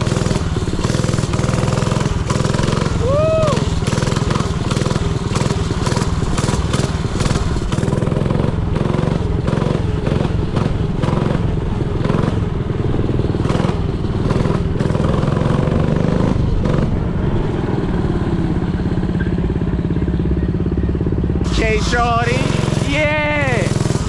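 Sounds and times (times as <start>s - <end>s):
dirt bike engine running: 0.0s - 24.0s.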